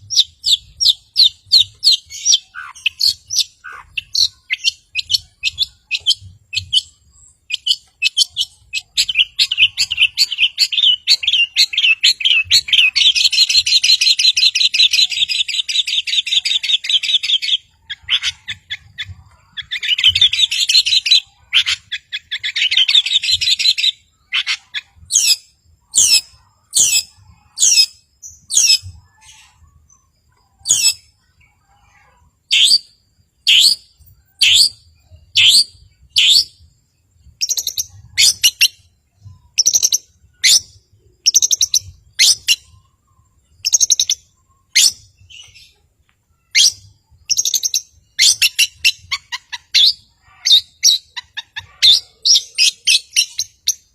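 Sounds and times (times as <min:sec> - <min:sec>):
bird singing fast chattering notes: 0:00.0 - 0:53.9.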